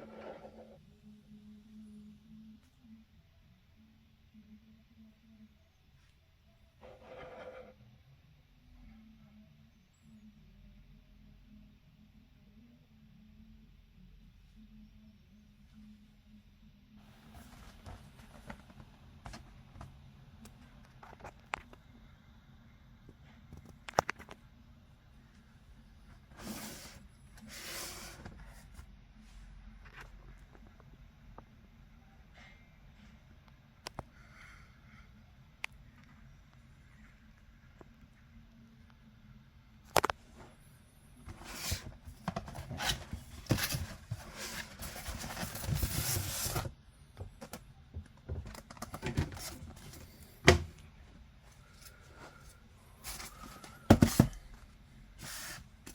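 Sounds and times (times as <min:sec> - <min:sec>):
packing materials rubbing and scraping: 0:41.3 - 0:46.7.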